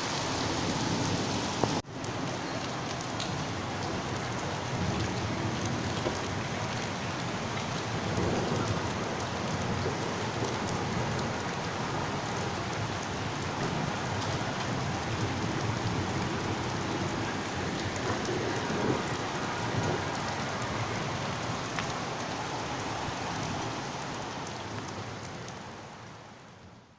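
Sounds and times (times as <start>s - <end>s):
heavy rain pattering: 0.0s - 26.9s.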